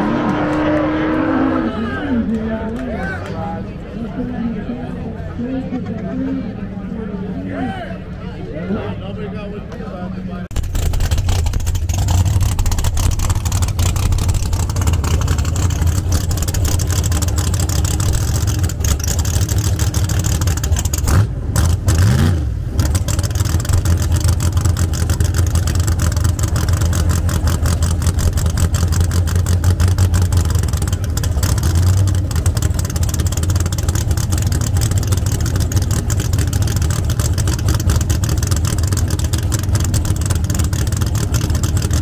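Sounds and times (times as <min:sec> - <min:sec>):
engine revving: 0:00.0 - 0:02.0, 0:10.5 - 0:42.0
car engine idling loudly: 0:10.5 - 0:21.9, 0:22.7 - 0:42.0.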